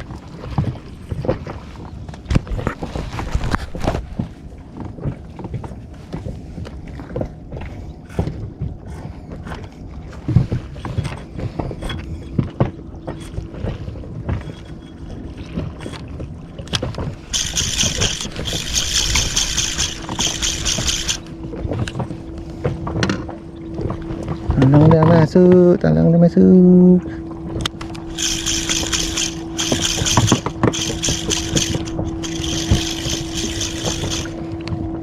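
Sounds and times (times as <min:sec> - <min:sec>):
water and wind rumble: 0:00.0 - 0:35.0
high-pitched buzzing rattle: 0:17.2 - 0:22.0, 0:27.9 - 0:34.5.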